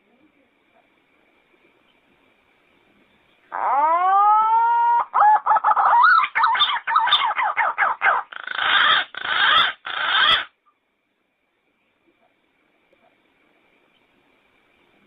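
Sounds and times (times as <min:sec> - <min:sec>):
harsh rasping bird calls: 0:03.5 - 0:10.6.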